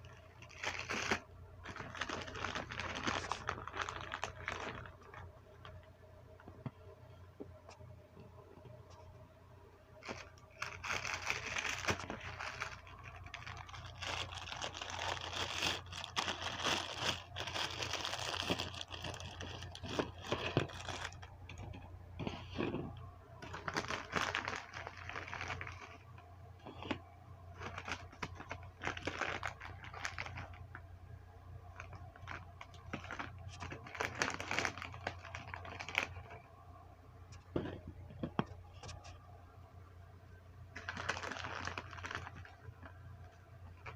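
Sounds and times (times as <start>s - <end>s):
plastic packaging crinkling: 0.0s - 5.9s, 10.0s - 30.9s, 31.6s - 36.5s, 40.7s - 43.9s.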